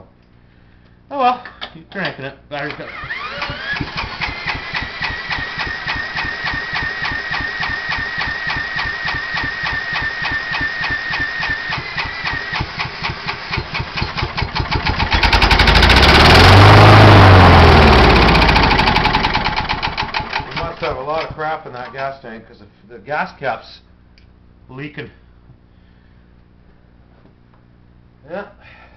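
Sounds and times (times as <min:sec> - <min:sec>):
electric drill whine: 0:02.8 - 0:19.9
mower engine chugging: 0:02.9 - 0:21.0.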